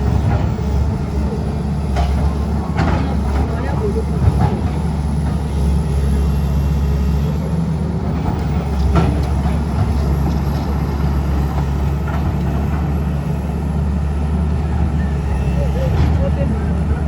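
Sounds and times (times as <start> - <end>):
heavy engine rumbling: 0.0 - 17.0.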